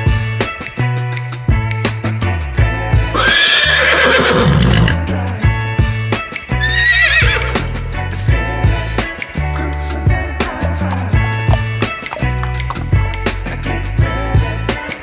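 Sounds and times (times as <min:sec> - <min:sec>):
background music with beat: 0:00.0 - 0:15.0
horse neighing: 0:03.1 - 0:05.1, 0:06.6 - 0:07.9.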